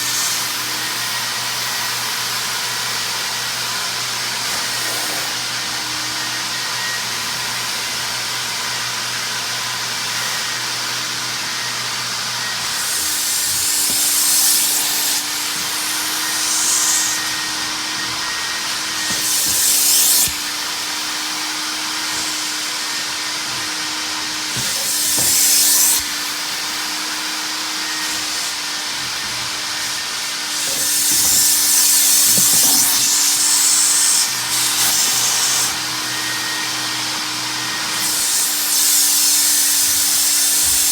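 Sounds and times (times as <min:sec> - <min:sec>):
carpet extractor vacuum hum: 0:00.0 - 0:40.9
water spraying and sucking: 0:04.4 - 0:05.7, 0:12.5 - 0:40.9.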